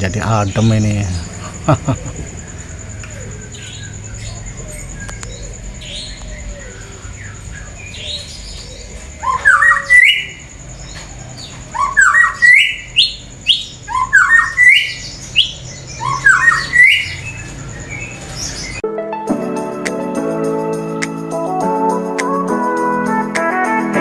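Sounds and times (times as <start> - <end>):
faint bird chirps: 0.0 - 18.8
songbird singing rising phrases: 0.0 - 18.8.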